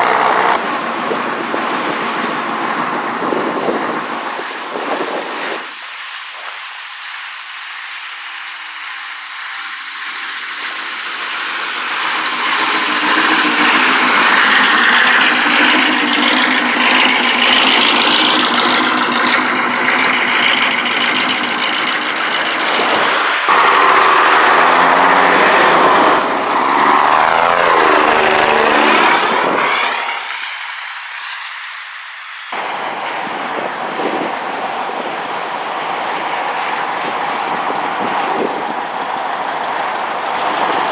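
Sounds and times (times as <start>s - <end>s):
trucks driving past: 0.0s - 5.7s, 8.8s - 40.9s.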